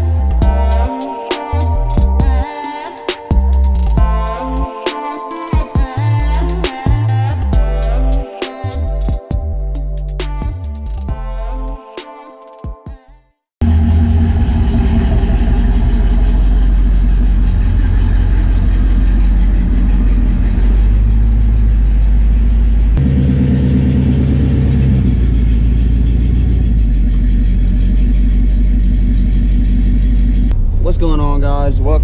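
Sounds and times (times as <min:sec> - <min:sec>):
car engine rumbling loudly: 0:13.6 - 0:32.0.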